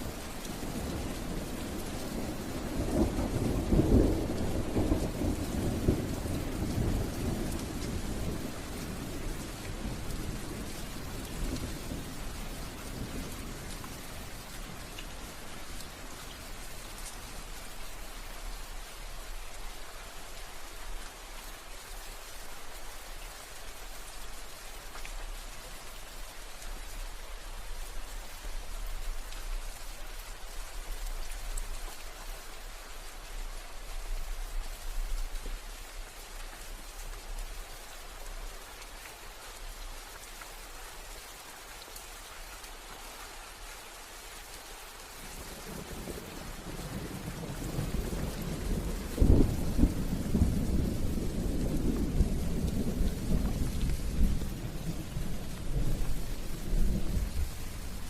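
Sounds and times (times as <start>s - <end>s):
steady rain hiss: 0.0s - 58.0s
raindrop ticks: 13.2s - 17.2s, 24.9s - 25.7s, 45.5s - 57.7s
thunder rumble: 45.8s - 58.0s.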